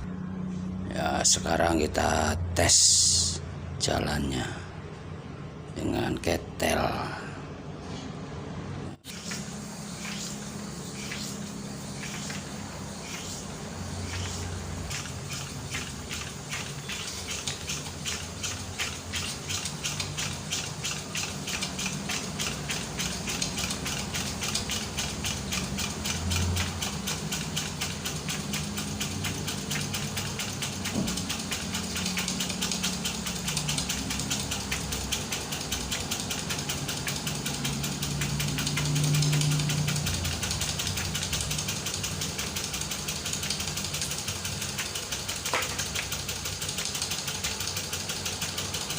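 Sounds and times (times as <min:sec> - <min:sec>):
small steam engine clicking: 0:09.1 - 0:48.9.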